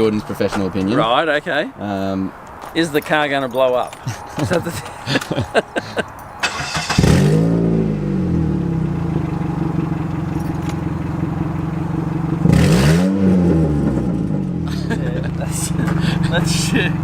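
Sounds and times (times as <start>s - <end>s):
car engine starting and idling: 6.1s - 17.0s.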